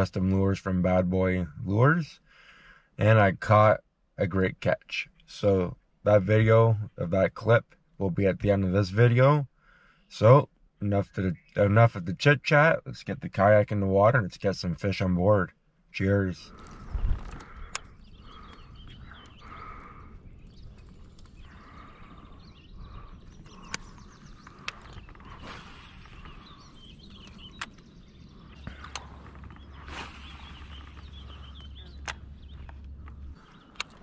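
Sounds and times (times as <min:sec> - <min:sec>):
birds calling: 0:01.2 - 0:34.0
steady low rumble: 0:14.3 - 0:34.0.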